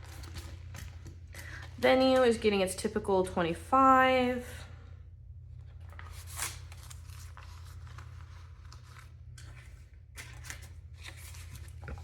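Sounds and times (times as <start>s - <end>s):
paper banknotes rustling: 0.0s - 2.5s, 5.7s - 12.0s
steady low hum: 0.0s - 12.0s.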